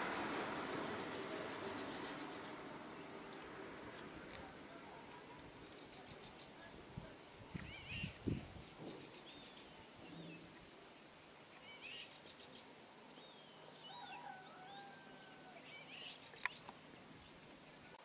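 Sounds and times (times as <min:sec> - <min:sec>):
drawn-out bird calls: 0:00.0 - 0:03.6
faint birdsong chirps and trills: 0:00.4 - 0:18.0.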